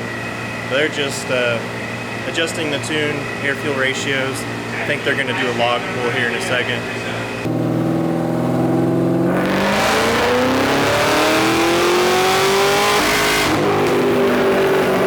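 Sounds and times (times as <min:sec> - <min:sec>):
engine revving on a dyno: 0:07.4 - 0:15.0.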